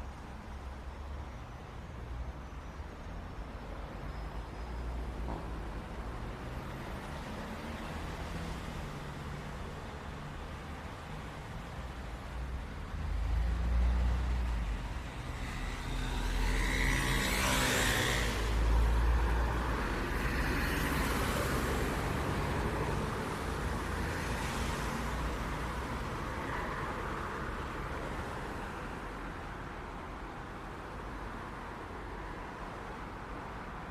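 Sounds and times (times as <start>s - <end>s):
low rumble of traffic: 0.0s - 33.9s
cars passing close by: 12.6s - 33.9s.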